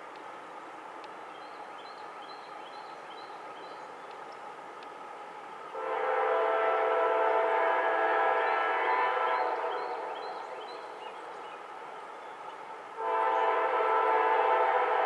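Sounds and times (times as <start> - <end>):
steady background noise: 0.0 - 15.0
locomotive air horn blast: 5.8 - 10.1, 13.0 - 15.0.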